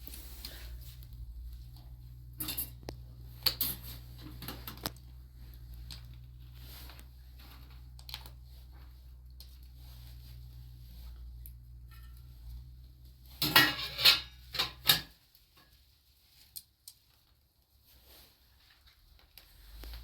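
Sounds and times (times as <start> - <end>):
dishes clinking and knocking: 13.4 - 15.1.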